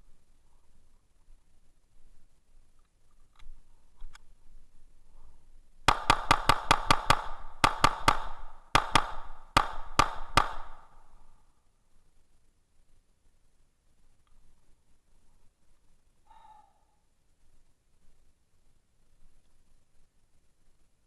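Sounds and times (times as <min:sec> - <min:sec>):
rapid pistol gunshots: 0:05.9 - 0:11.0.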